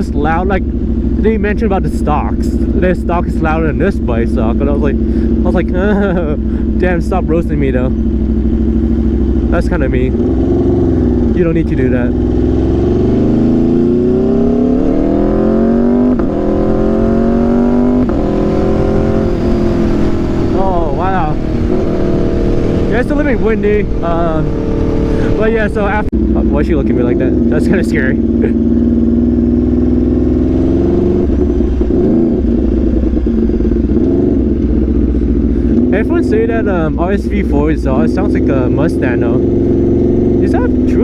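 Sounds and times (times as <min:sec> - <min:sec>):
motorcycle engine accelerating: 0:00.0 - 0:41.0
wind noise: 0:09.4 - 0:26.2.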